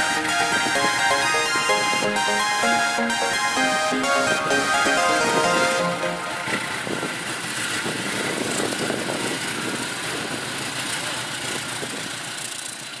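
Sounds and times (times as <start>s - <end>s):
diesel train passing: 6.0s - 8.6s.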